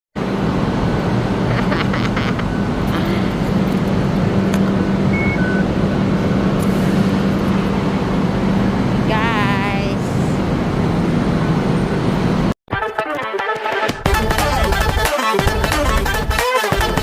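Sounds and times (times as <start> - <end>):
moving vehicle rumble: 0.2 - 12.6
short faint beeps: 5.1 - 5.7.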